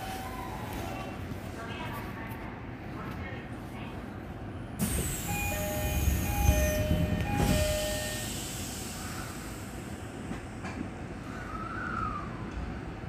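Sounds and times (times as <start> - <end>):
train rumble: 0.0 - 13.0
electric train whine: 4.8 - 13.0.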